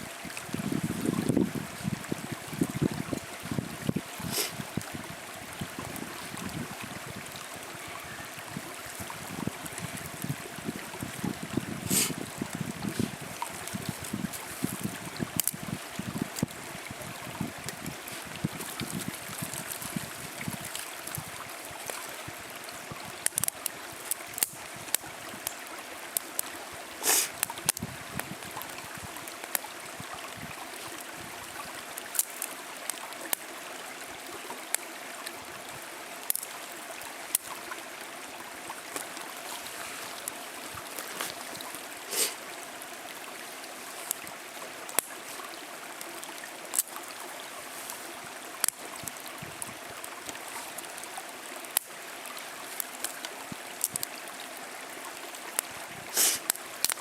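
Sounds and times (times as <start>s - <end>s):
fire rushing hiss: 4.2s - 4.8s, 11.8s - 12.2s, 27.0s - 27.4s, 42.0s - 42.4s, 56.1s - 56.6s
wood fire crackling and popping: 13.0s - 16.5s, 23.2s - 25.6s, 27.4s - 28.4s, 36.2s - 36.5s, 48.6s - 49.2s, 52.8s - 54.1s, 56.2s - 57.0s.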